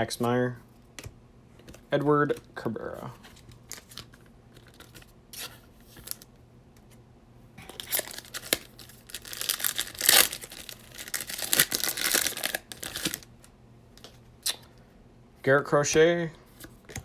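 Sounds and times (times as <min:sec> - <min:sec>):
wrapper tearing and crinkling: 0:07.6 - 0:13.3.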